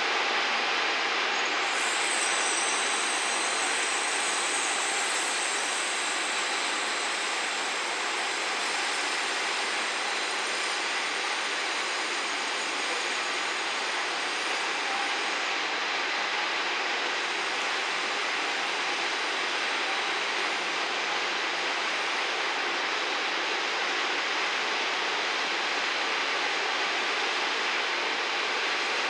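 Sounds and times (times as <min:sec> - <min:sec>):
distant train running hiss: 0:00.0 - 0:29.0
high thin squeal: 0:01.5 - 0:10.8.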